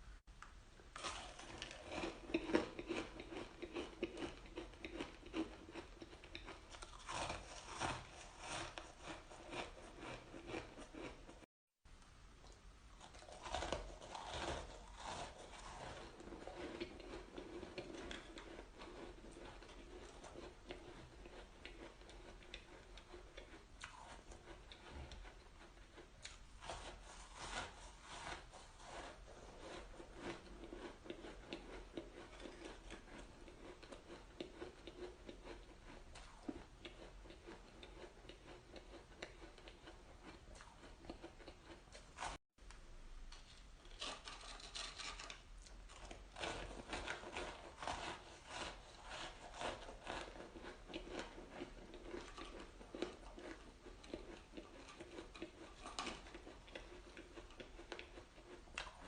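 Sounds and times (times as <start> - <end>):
chewing crunchy shaved ice: 1.0 - 11.5, 13.0 - 42.4, 44.0 - 59.0.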